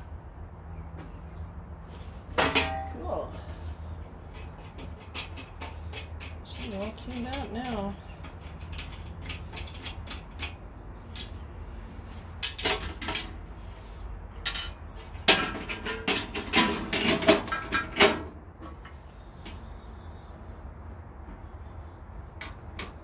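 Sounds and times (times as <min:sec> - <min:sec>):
metal parts clinking and clanking: 0:04.2 - 0:11.4, 0:14.4 - 0:18.3.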